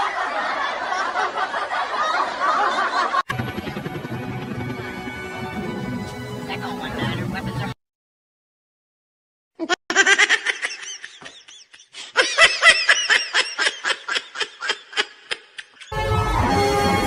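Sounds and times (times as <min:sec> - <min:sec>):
music: 0:03.3 - 0:07.8, 0:15.9 - 0:17.0
person laughing: 0:09.6 - 0:16.0.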